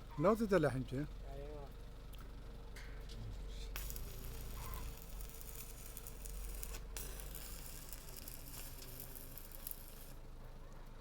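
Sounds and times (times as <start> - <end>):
low steady hum: 0.0 - 11.0
welding arc crackling sizzle: 3.7 - 10.2.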